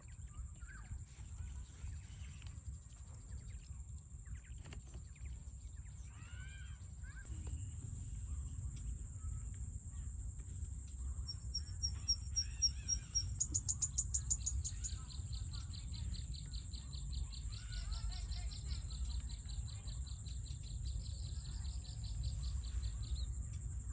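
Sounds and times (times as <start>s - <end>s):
low rumble: 7.2s - 17.5s
bird calls: 10.6s - 23.6s
high-pitched insect drone: 11.0s - 15.4s.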